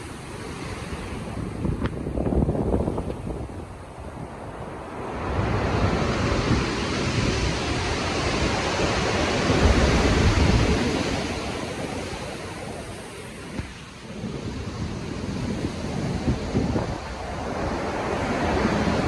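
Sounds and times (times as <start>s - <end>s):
sea waves breaking: 0.0s - 19.0s
strong wind: 0.0s - 19.0s.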